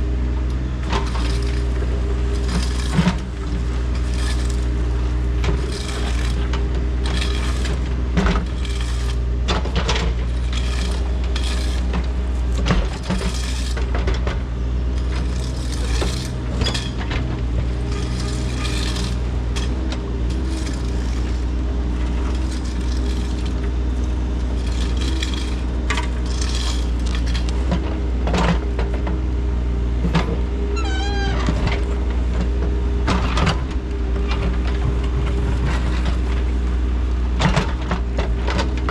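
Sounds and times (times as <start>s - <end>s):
heavy machine engine running: 0.0s - 38.9s
clanks and scrapes of digging: 0.4s - 38.9s
brief squeak: 30.8s - 31.6s.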